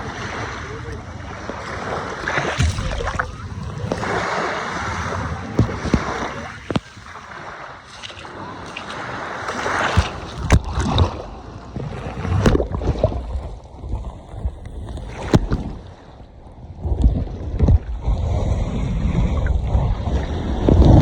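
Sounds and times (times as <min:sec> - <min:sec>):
gusty wind buffeting microphone: 0:00.0 - 0:07.0, 0:16.6 - 0:21.0.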